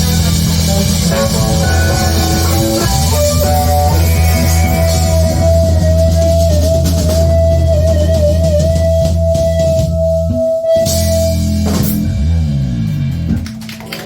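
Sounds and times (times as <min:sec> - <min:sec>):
wavering lead note: 0:00.0 - 0:13.1
steady bass: 0:00.0 - 0:14.0.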